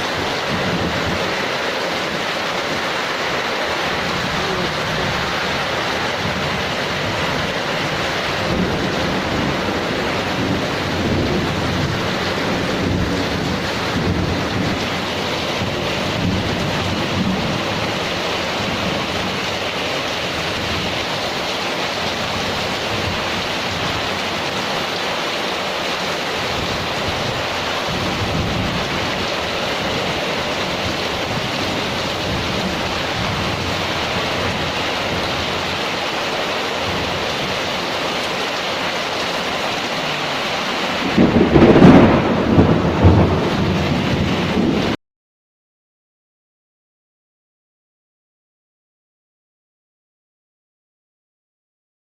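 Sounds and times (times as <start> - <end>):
thunder clap rumbling: 0.0 - 24.2, 26.4 - 35.8, 39.4 - 45.0
heavy rain pouring: 0.0 - 45.0.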